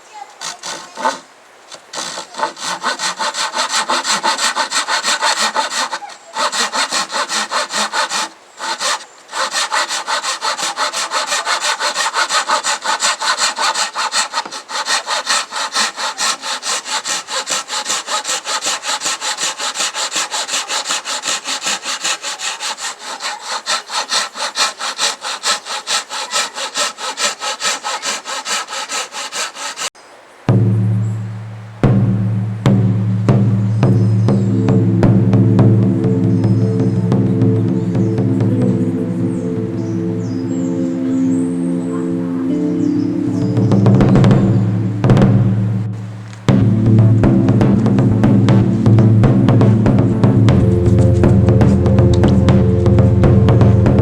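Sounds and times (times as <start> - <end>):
hand saw cutting wood: 0.0 - 30.0.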